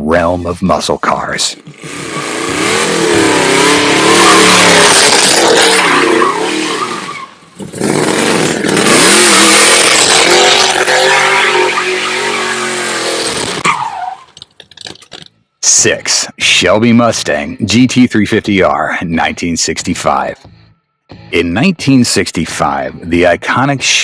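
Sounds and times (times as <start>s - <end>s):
car engine revving: 1.6s - 13.8s.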